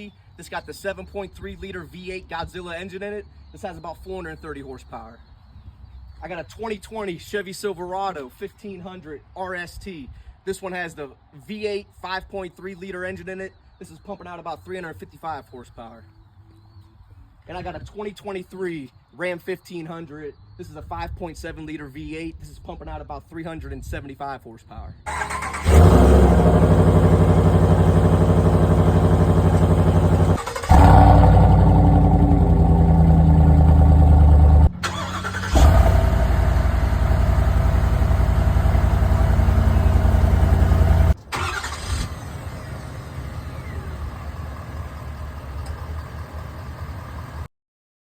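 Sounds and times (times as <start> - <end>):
pickup truck engines running: 25.1 - 47.5.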